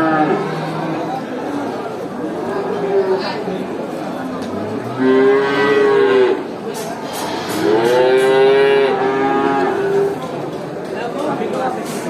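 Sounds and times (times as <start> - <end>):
cow mooing: 4.9 - 6.4, 7.2 - 10.2.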